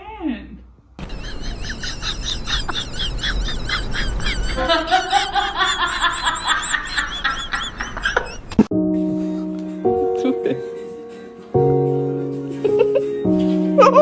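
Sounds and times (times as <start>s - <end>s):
low drawn-out bird call: 1.0s - 4.7s
birds chirping rapidly: 1.0s - 4.8s, 5.9s - 8.6s.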